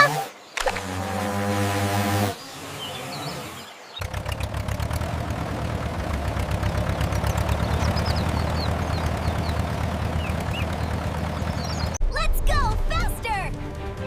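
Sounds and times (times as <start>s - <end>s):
birds chirping: 0.0s - 12.0s
vehicle engine puttering: 3.9s - 12.0s.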